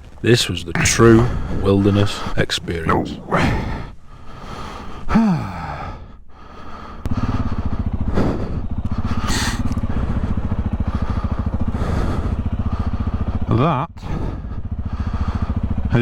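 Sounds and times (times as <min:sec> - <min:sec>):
motorcycle engine starting and idling: 0:06.6 - 0:16.0.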